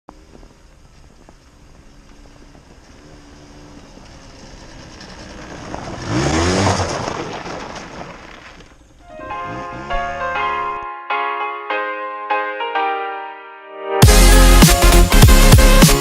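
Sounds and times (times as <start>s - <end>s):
moped engine revving: 0.1s - 10.8s.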